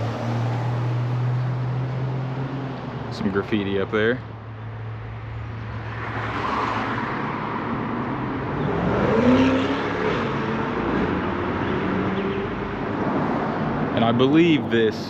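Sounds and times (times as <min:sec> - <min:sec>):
rumble of traffic: 0:00.0 - 0:15.0
vehicle passing: 0:00.0 - 0:15.0.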